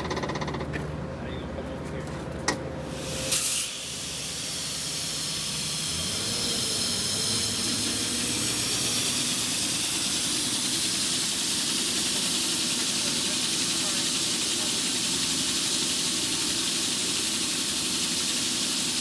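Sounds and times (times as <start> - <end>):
high-pressure water spraying hiss: 2.8 - 19.0.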